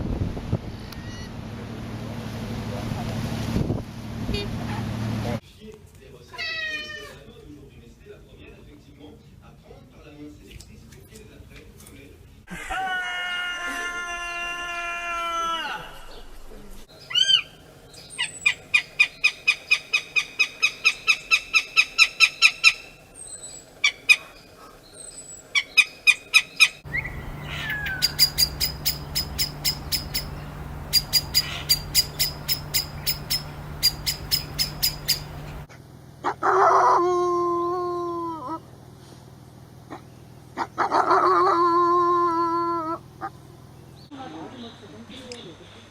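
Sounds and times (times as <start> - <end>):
animal call falling in pitch: 12.5 - 16.5
high animal chirps: 25.0 - 35.7
low hum: 26.9 - 35.7.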